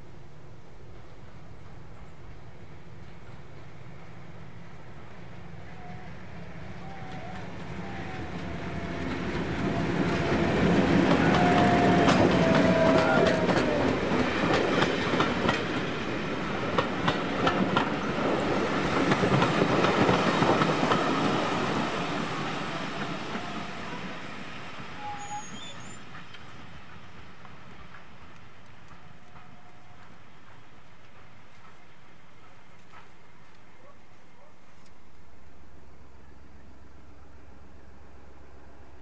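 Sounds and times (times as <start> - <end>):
diesel train engine rumbling: 0.0 - 34.4
wheels clicking over rail joints: 6.8 - 21.8.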